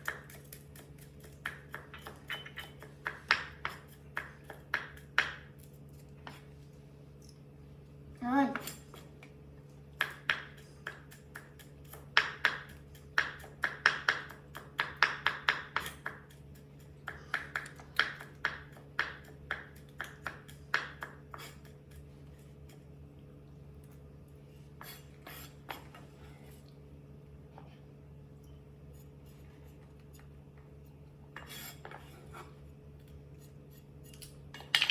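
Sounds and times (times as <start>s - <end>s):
knife tapping on a plate: 0.0s - 5.5s, 10.0s - 16.4s.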